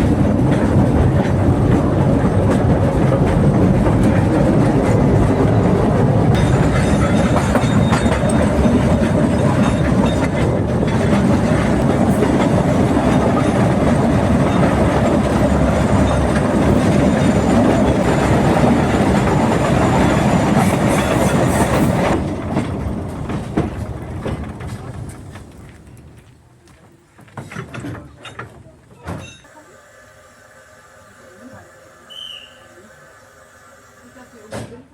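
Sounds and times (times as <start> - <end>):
train wheels clacking on track: 0.0 - 26.3.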